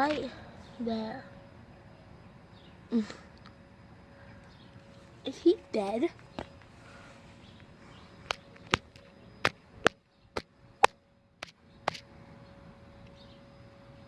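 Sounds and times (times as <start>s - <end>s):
faint steady hum: 0.0s - 14.0s
sharp taps or clicks: 8.3s - 12.0s.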